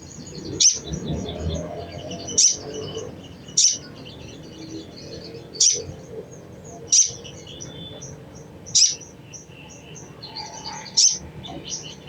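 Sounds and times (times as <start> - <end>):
high bird twittering: 3.5 - 4.0, 5.6 - 5.9, 6.9 - 7.3, 8.7 - 9.1
bird chattering calls: 5.6 - 5.9, 8.8 - 9.1.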